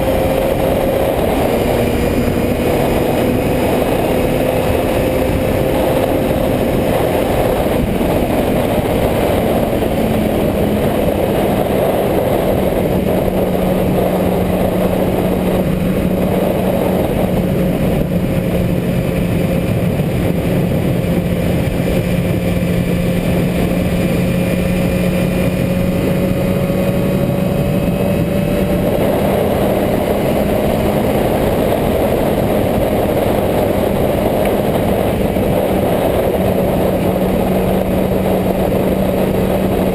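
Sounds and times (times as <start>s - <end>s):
heavy rushing noise: 0.0s - 39.9s
motorcycle engine running: 0.0s - 39.9s.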